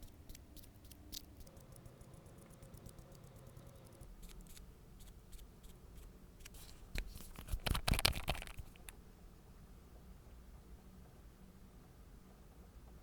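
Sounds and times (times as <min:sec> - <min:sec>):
nail tools clicking and scraping: 0:00.0 - 0:05.4.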